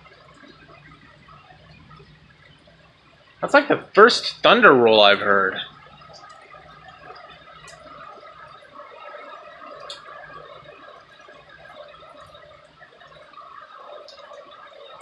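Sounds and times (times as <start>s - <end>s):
rainwater gurgling and dripping: 0.0s - 15.0s
sharp water drips: 0.0s - 15.0s.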